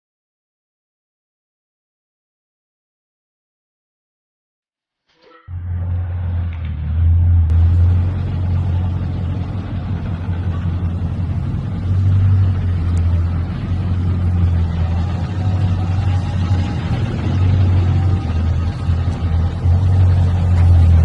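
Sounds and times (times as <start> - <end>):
car engine rumbling: 5.5 - 21.0.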